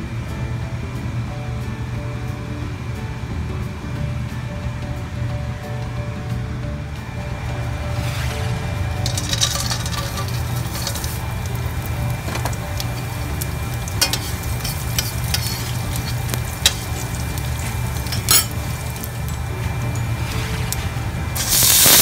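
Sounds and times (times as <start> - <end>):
oil sizzling in a pan: 8.0 - 22.0
spoon stirring: 9.0 - 20.0.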